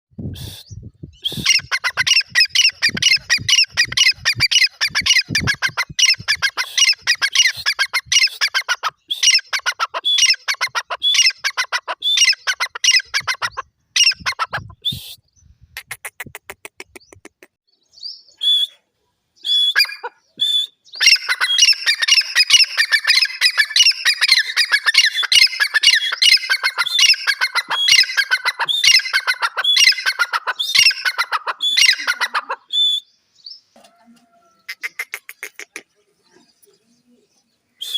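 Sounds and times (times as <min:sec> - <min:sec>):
francolins calling: 0:01.2 - 0:14.8, 0:19.4 - 0:33.7.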